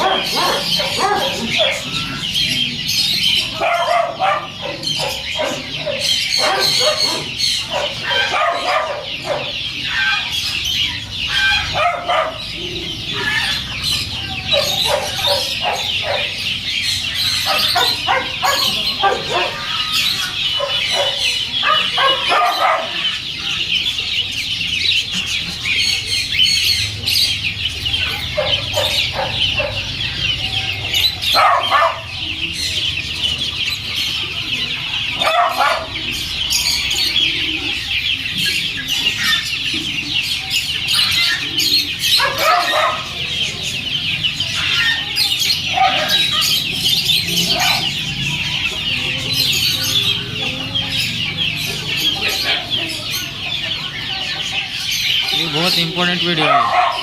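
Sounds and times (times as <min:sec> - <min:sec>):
caged birds chattering: 0:00.0 - 0:57.0
lower-pitched bird calls: 0:00.0 - 0:57.0.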